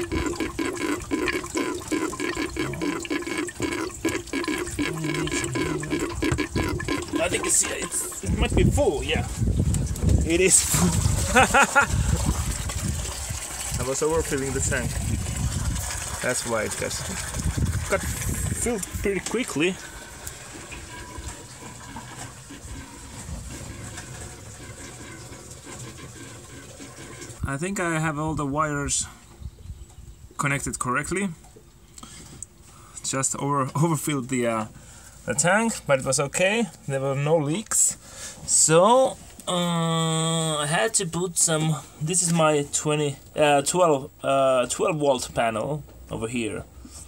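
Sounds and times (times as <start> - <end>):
water gurgling in a tank: 0.0 - 28.1.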